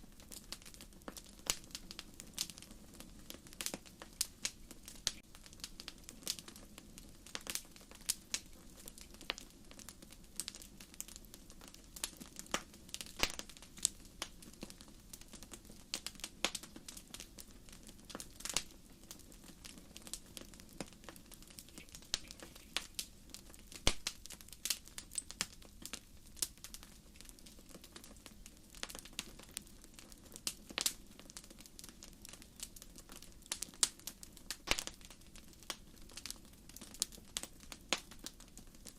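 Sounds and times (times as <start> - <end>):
firewood crackling and popping: 0.0 - 38.9.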